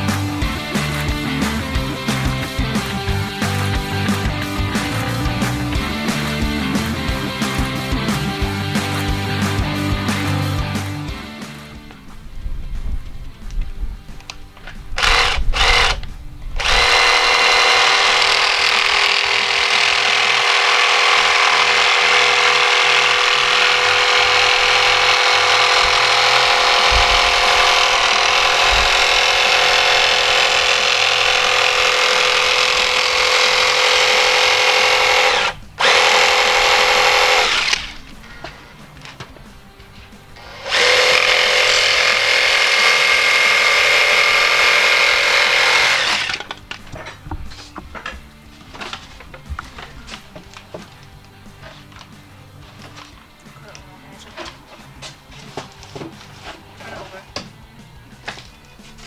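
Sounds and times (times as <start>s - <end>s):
electric power tool motor running: 14.7s - 38.2s, 40.4s - 46.6s.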